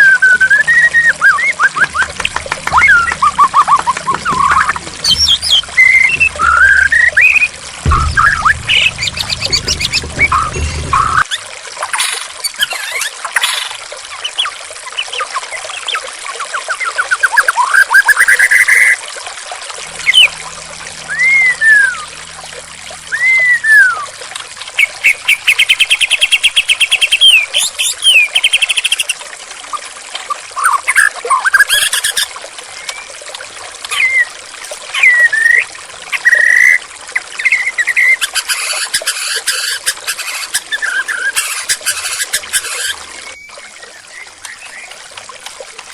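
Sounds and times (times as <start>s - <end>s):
bird singing whistles and trills: 0.0s - 2.1s, 2.7s - 11.2s, 21.0s - 22.3s, 23.1s - 24.2s, 24.8s - 29.2s, 35.0s - 36.8s
flowing water: 0.0s - 45.9s.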